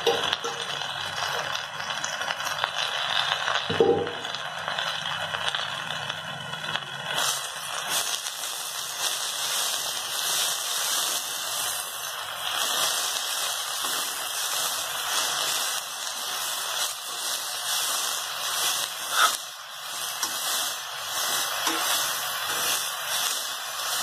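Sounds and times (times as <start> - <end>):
leaves sizzling in metal pan: 0.0 - 24.0
spatula scraping pan: 17.1 - 24.0.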